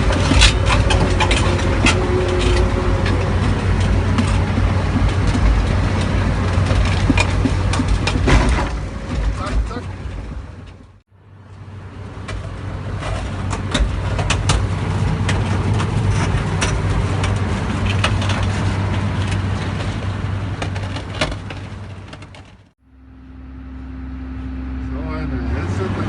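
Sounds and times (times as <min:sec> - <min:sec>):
machine clanks and knocks: 0:00.0 - 0:11.0, 0:12.2 - 0:22.6
diesel engine running: 0:00.0 - 0:26.0.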